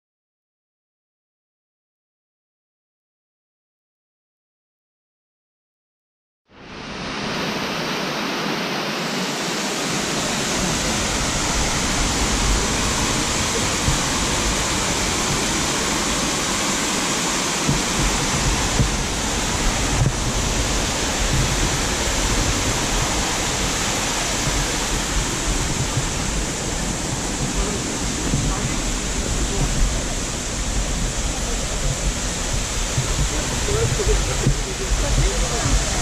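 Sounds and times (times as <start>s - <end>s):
waterfall pouring: 7.5s - 36.0s.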